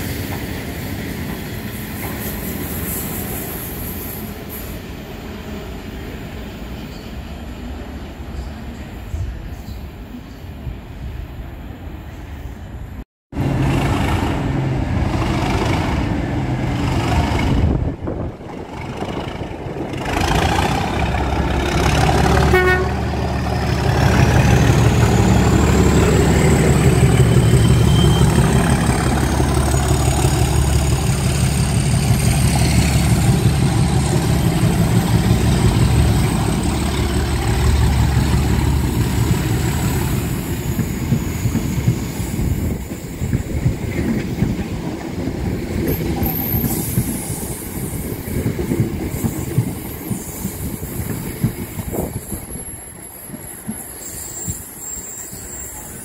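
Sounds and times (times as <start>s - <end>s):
train engine rumbling: 0.0s - 56.0s
train horn toot: 22.3s - 23.2s.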